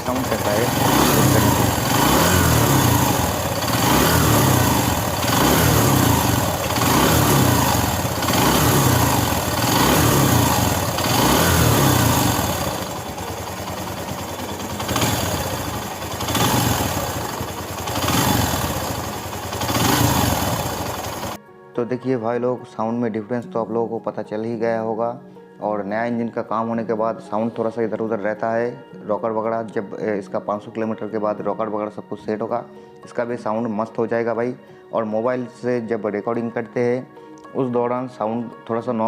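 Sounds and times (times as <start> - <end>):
motorcycle engine idling: 0.0 - 21.4
motorcycle engine revving: 0.0 - 21.4.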